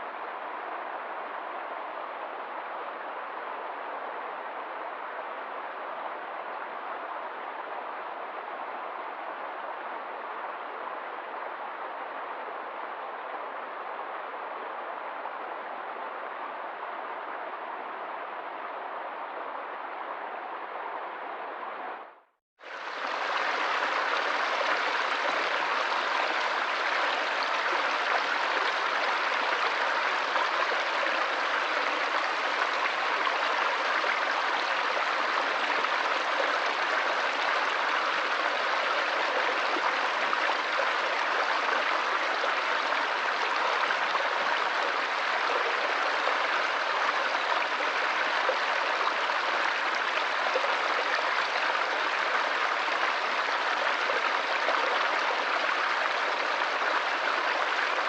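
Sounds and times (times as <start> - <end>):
stream water running: 22.6 - 58.0.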